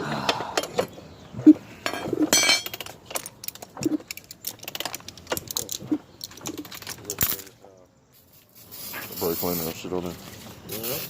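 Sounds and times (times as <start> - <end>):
metal tools clinking: 1.8 - 9.8.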